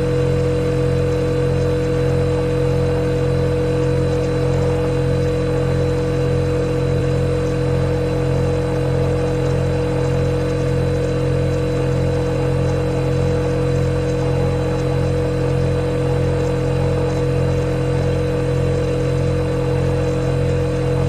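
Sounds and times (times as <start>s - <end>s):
refrigerator compressor humming: 0.0s - 21.0s.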